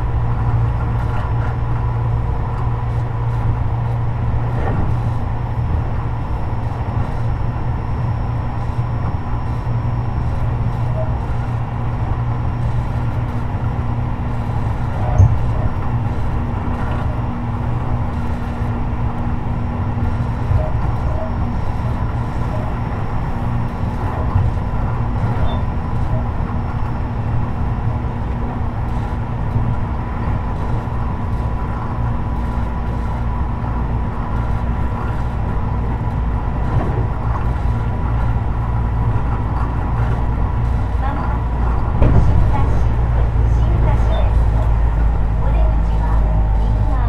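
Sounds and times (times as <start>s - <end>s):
train wheels rumbling on rail: 0.0s - 47.0s.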